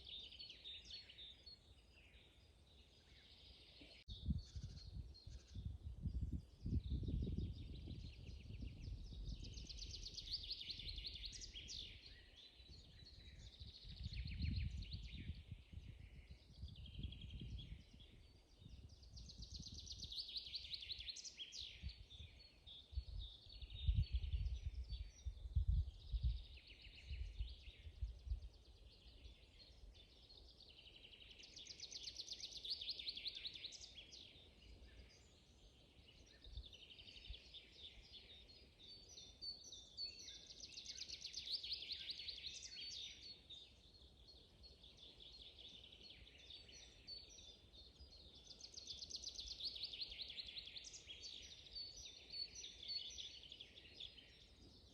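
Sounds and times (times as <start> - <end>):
songbirds singing: 0.0 - 54.9
wind rumble on microphone: 4.1 - 31.2.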